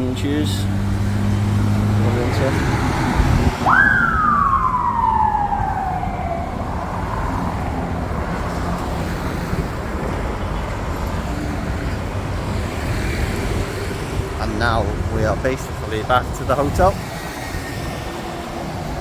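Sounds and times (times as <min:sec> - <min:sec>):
street noise: 0:00.0 - 0:19.0
siren-like gliding tone: 0:03.4 - 0:09.1.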